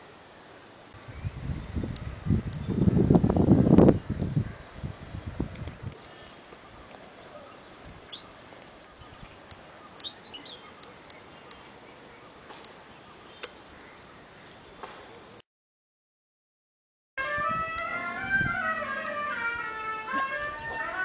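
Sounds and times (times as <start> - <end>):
faint outdoor hush: 0.0 - 15.4.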